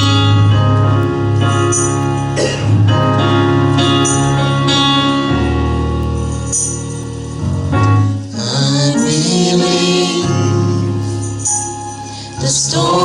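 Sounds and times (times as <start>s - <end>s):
deep bass line: 0.0s - 11.1s
organ chords: 0.0s - 13.0s
percussion shimmer: 6.1s - 7.4s, 11.0s - 12.4s.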